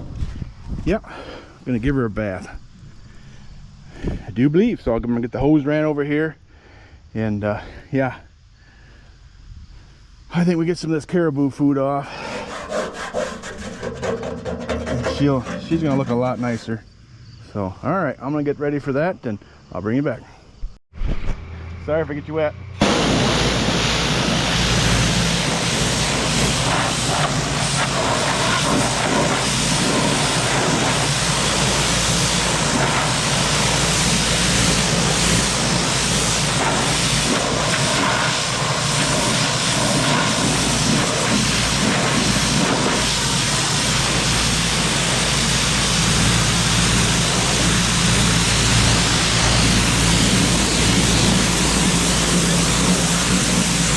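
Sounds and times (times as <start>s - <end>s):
pressure washer spraying water: 12.3s - 16.8s, 22.8s - 53.9s.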